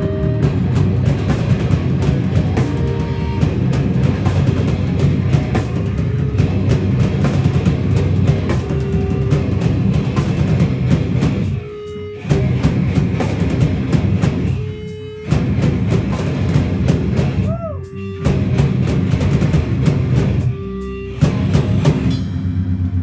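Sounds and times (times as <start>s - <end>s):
hardcore band playing live: 0.0s - 23.0s
held guitar note ringing: 17.9s - 23.0s.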